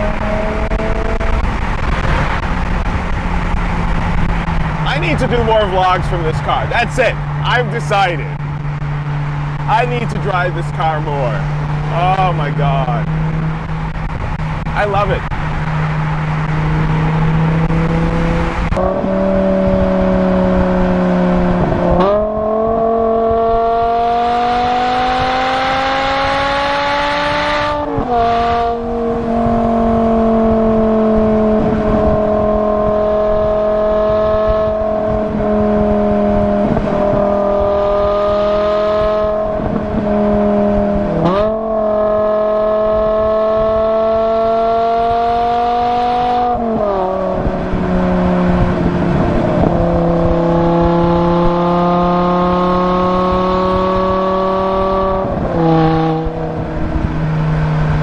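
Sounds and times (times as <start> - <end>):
car engine accelerating hard: 0.0 - 58.0.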